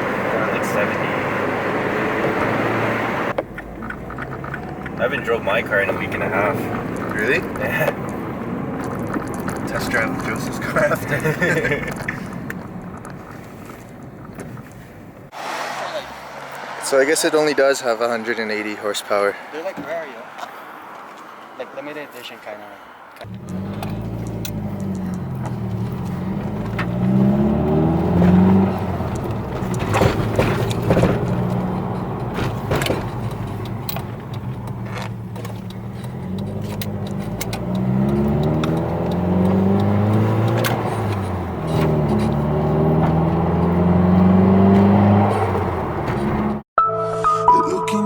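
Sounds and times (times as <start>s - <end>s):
car engine accelerating: 0.0s - 14.3s, 23.2s - 46.6s.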